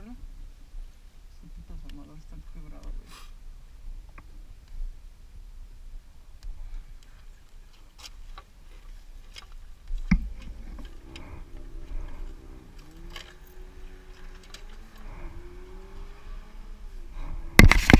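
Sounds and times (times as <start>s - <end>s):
faint engine hum: 8.9s - 17.6s.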